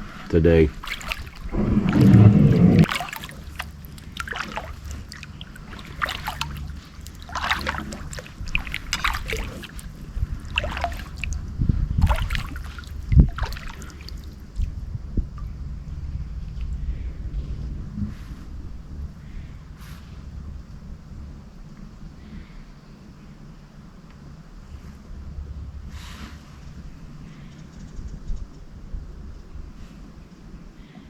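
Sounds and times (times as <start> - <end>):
paddle splashes and drips: 0.0 - 15.6
loud low rumble: 1.4 - 3.8, 14.7 - 21.6.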